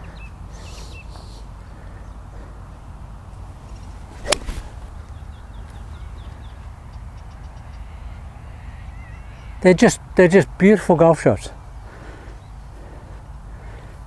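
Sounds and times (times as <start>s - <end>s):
low outdoor rumble: 1.4s - 7.1s
golf club striking ball: 4.1s - 5.2s.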